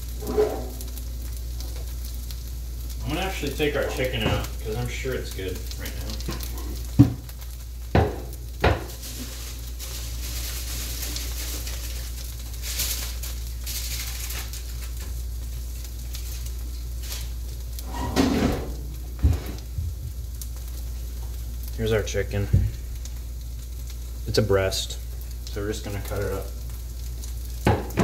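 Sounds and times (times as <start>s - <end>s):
pancake sizzling in a frying pan: 0.0s - 28.0s
kitchen knocks: 8.0s - 8.9s, 27.6s - 28.0s.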